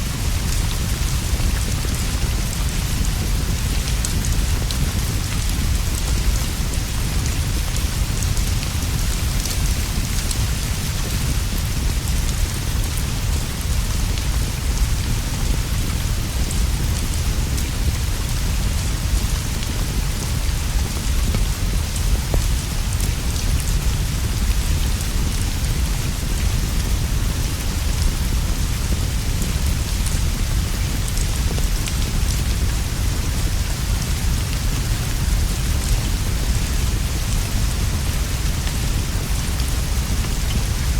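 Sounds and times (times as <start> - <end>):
heavy rain on roof and leaves: 0.0 - 40.9.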